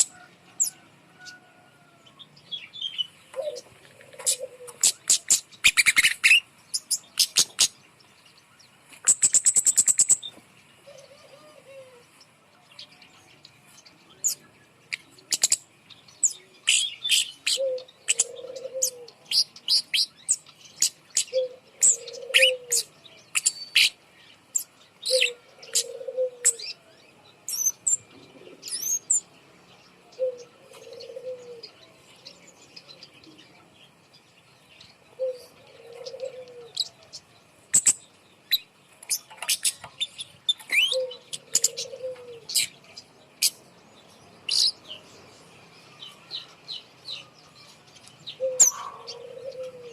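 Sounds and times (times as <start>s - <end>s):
songbird chirping and trilling: 0.0s - 49.9s
low cooing: 3.3s - 5.0s, 10.8s - 12.1s, 17.5s - 19.2s, 21.3s - 22.9s, 25.1s - 26.9s, 30.2s - 32.0s, 35.2s - 37.0s, 40.8s - 42.6s, 48.4s - 49.9s.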